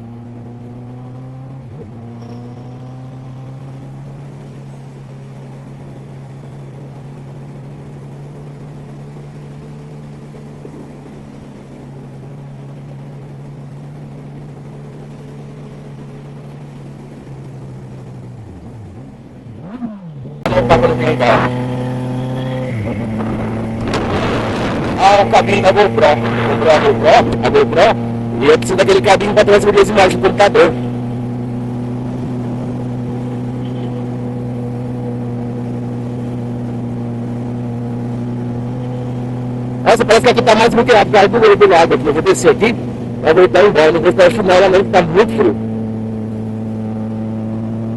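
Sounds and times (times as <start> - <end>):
motorcycle engine cruising: 0.0 - 47.9
wind noise: 22.5 - 28.3.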